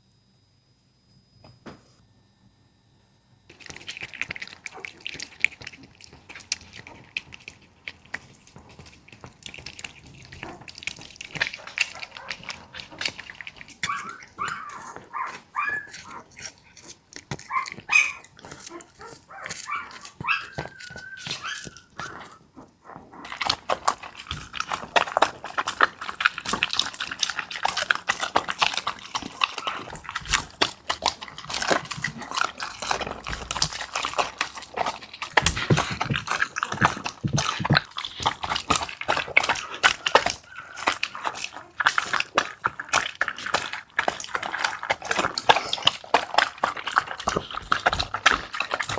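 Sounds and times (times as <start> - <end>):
rapid clicks and crunches: 3.5 - 48.9
small dog whimpering: 13.9 - 16.2, 17.4 - 23.2.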